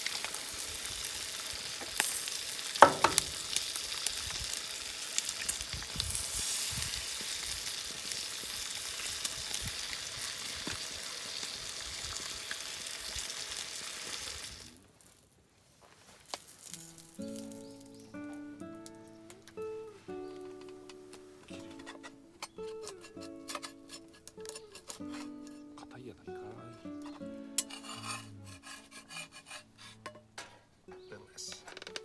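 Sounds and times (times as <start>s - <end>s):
food sizzling in a frying pan: 0.0s - 15.2s, 16.3s - 21.6s, 27.0s - 28.1s
sharp metal clink: 2.8s - 3.5s.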